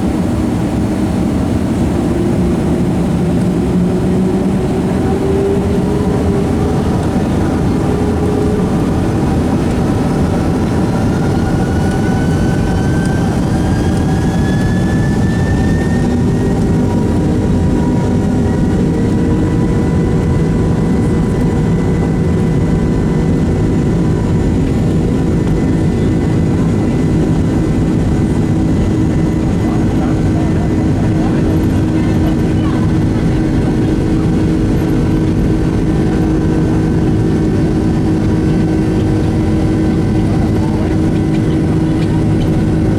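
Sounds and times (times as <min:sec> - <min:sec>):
jet engines spooling up: 0:00.0 - 0:42.9.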